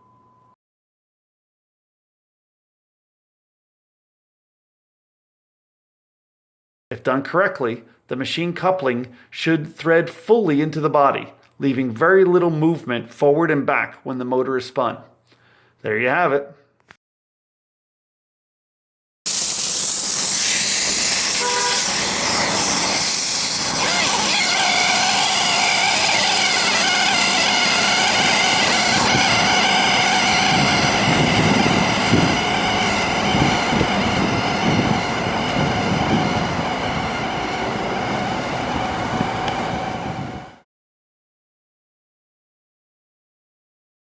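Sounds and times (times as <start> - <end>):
air motor hiss and whine: 19.3 - 40.6.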